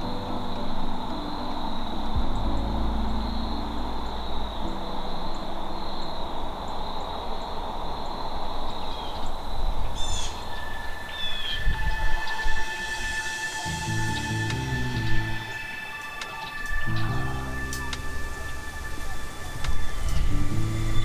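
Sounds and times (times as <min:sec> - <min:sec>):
sustained music tones: 0:00.0 - 0:08.8, 0:09.5 - 0:21.0
bird chirps: 0:00.0 - 0:21.0
steady hiss: 0:00.0 - 0:21.0
thin high whine: 0:10.4 - 0:21.0.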